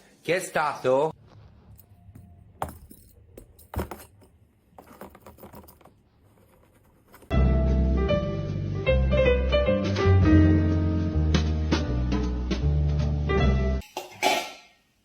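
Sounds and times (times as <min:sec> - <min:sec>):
music: 0:07.3 - 0:13.8.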